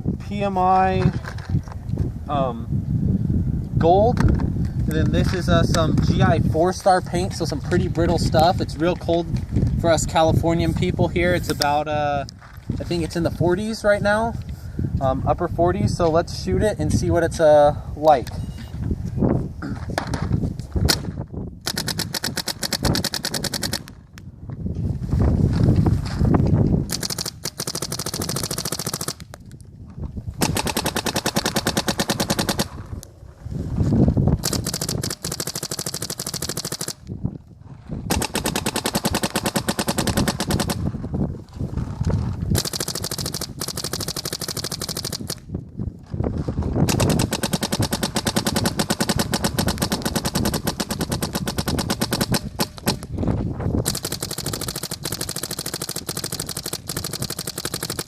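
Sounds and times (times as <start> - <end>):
paintball markers firing rapidly: 20.9 - 24.0, 26.8 - 29.4, 30.4 - 33.0, 34.4 - 37.1, 38.1 - 41.0, 42.5 - 45.5, 46.8 - 53.2, 53.8 - 58.0.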